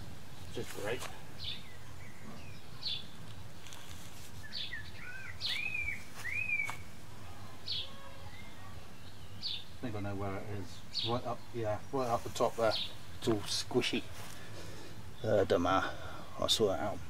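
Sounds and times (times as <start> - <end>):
birds chirping: 0.0 - 17.0
rising and falling bird calls: 1.4 - 9.9.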